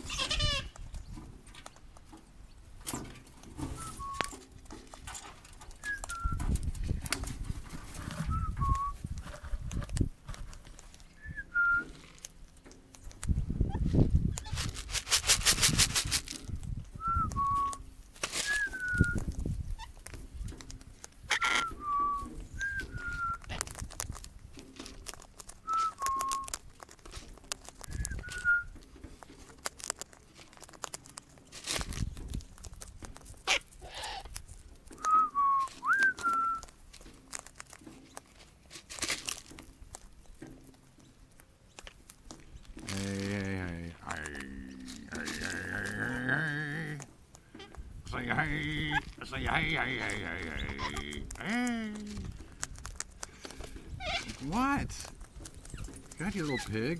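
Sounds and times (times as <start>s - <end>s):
two-note whistles: 3.7s - 4.4s, 5.8s - 6.5s, 8.2s - 9.0s, 17.0s - 17.8s, 18.5s - 19.2s, 21.5s - 23.4s, 28.0s - 28.7s, 35.0s - 36.6s.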